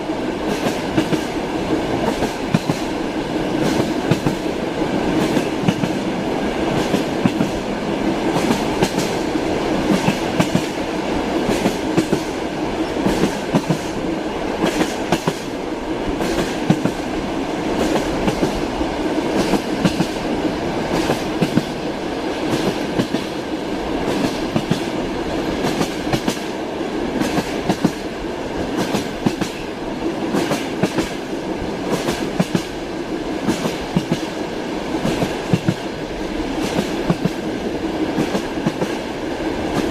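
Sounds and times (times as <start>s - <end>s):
train rolling rumble: 0.0s - 39.9s
train wheels clacking over rail joints: 0.4s - 3.0s, 3.6s - 4.5s, 5.1s - 6.1s, 6.7s - 7.6s, 8.2s - 10.8s, 11.4s - 14.0s, 14.6s - 15.5s, 19.3s - 20.2s, 20.9s - 21.8s, 22.4s - 23.4s, 24.0s - 25.0s, 25.6s - 26.5s, 27.2s - 29.7s, 30.3s - 31.3s, 31.9s - 32.8s, 33.4s - 34.4s, 35.0s - 37.5s.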